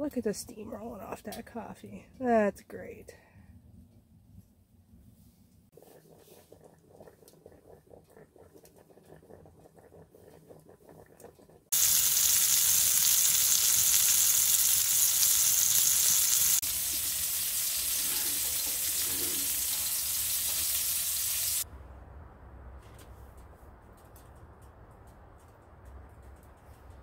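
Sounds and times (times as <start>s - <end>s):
sausage frying in oil: 11.7s - 21.7s.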